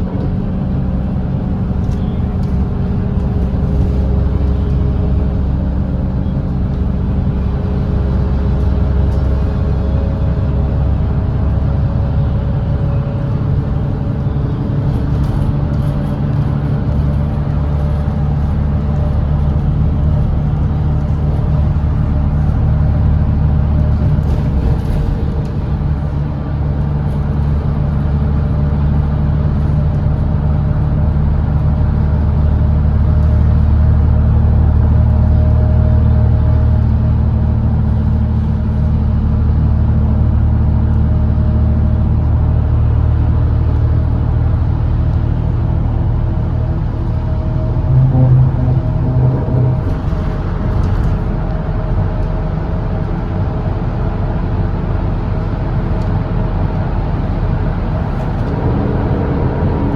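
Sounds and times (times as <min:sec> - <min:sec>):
diesel bus engine droning: 0:00.0 - 0:59.9.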